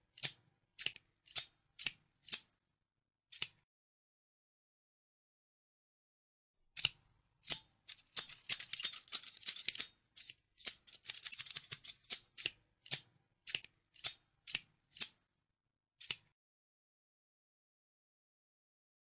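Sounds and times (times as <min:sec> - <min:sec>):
scissors snipping: 0:00.1 - 0:02.5, 0:03.3 - 0:03.6, 0:06.7 - 0:15.2, 0:16.0 - 0:16.3.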